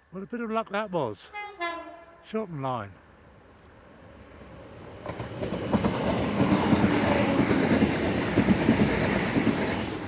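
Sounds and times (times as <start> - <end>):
diesel train passing: 0.0 - 10.0
train wheels clattering over rails: 4.8 - 10.0.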